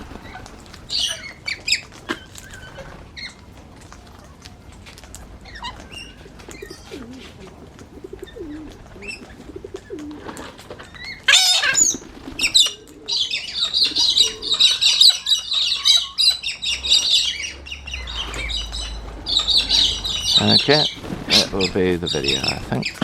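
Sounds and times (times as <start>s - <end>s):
faint warbling bird calls: 0.0s - 23.0s
flurry of wingbeats: 0.0s - 23.0s
shrill parrot chatter: 11.0s - 23.0s.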